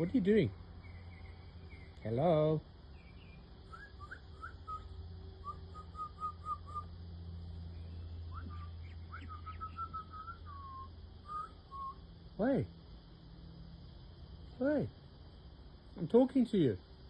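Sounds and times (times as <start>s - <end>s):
birds whistling short notes: 3.0s - 7.0s, 7.8s - 12.0s.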